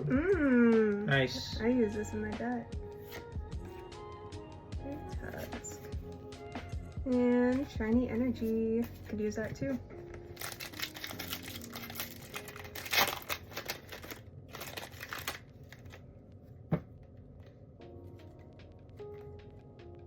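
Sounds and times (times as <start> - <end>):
foil wrapper crinkling and tearing: 10.1 - 16.1.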